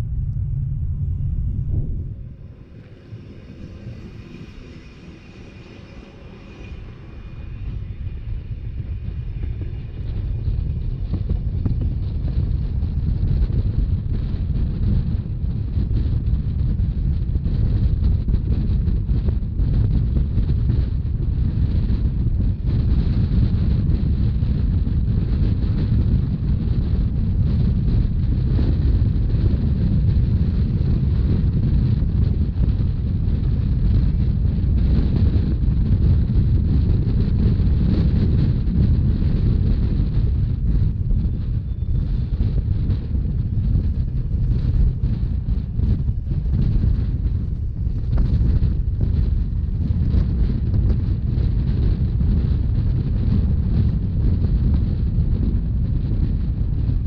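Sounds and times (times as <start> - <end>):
faint high whine: 0.0 - 14.4, 38.5 - 46.8
train wheels rumbling on rails: 0.0 - 57.0
wind buffeting the microphone: 0.0 - 57.0.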